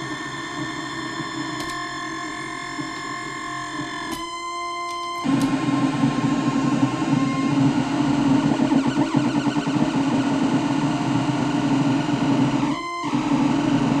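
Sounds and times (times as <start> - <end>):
harsh distorted synthesizer drone: 5.3 - 14.0.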